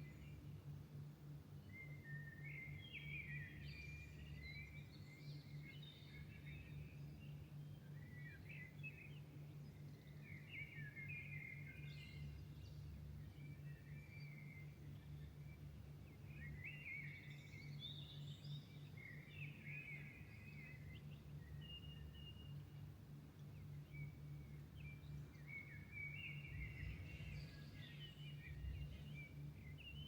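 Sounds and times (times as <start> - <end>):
songbirds singing: 0.0 - 30.0
steady low hum: 20.0 - 30.0.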